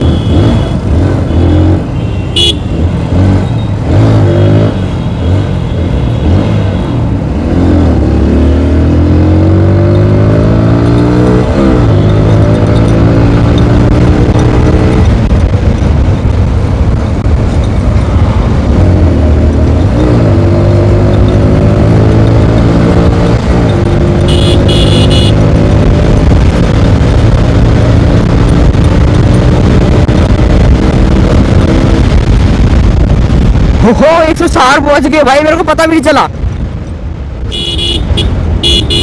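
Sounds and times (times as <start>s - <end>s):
motorcycle engine accelerating: 7.4s - 33.8s
wind rush on microphone: 11.0s - 24.3s, 25.3s - 39.0s.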